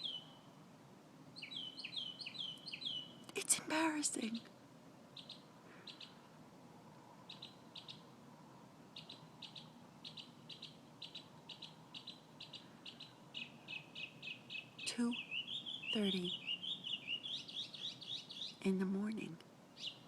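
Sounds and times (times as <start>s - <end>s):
bird chirping: 0.0s - 0.6s, 1.4s - 3.4s, 5.1s - 6.3s, 7.2s - 8.2s, 8.9s - 20.0s.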